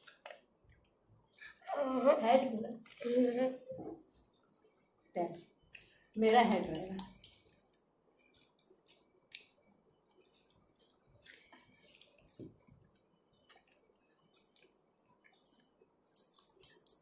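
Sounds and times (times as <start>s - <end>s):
quiet chewing: 3.9s - 6.2s, 7.1s - 17.0s.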